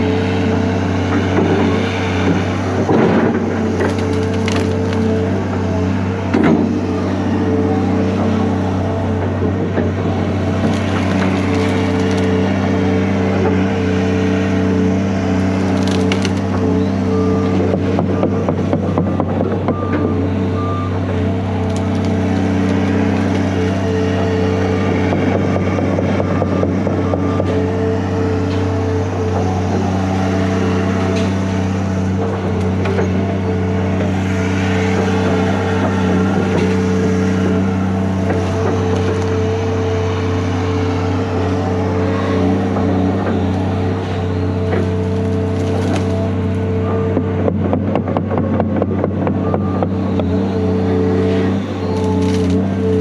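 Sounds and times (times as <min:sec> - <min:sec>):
excavator diesel engine running: 0:00.0 - 0:53.0
branches snapping and cracking: 0:02.2 - 0:05.4, 0:10.3 - 0:13.7, 0:14.7 - 0:17.6, 0:21.0 - 0:24.2, 0:34.9 - 0:41.0, 0:42.5 - 0:46.6, 0:51.2 - 0:53.0.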